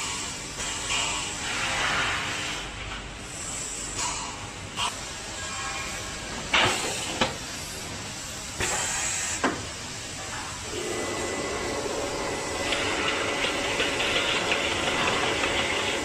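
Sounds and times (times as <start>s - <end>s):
air hissing bursts: 6.7s - 16.0s
machine running with a whine: 10.6s - 16.0s.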